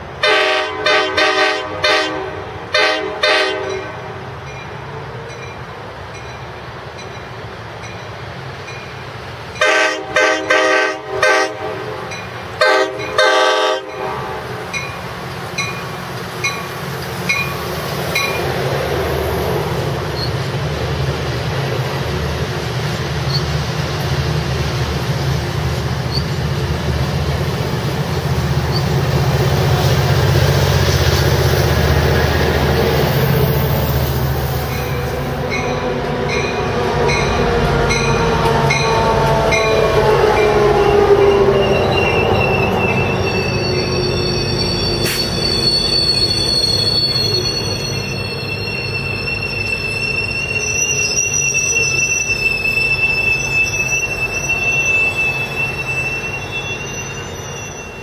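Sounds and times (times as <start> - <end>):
train cars rumbling: 0.0 - 58.0
train wheel and brake squeal: 12.1 - 20.6, 23.1 - 24.1, 26.0 - 26.6, 27.7 - 58.0.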